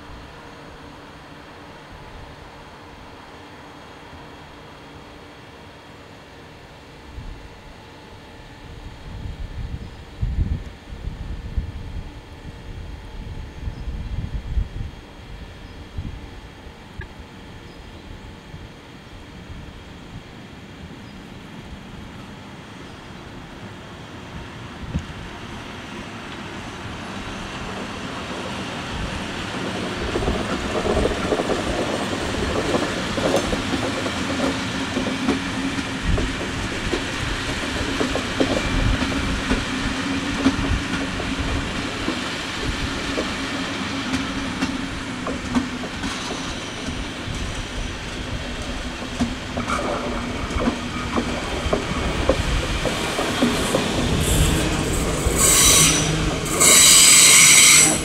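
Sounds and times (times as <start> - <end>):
train rolling along track: 0.0 - 58.0
wheels clacking over rail joints: 29.4 - 58.0.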